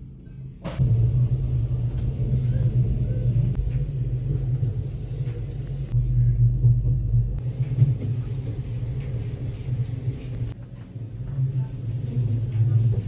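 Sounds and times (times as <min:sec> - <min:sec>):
train wheels rumbling on track: 0:00.8 - 0:06.0, 0:07.4 - 0:13.0.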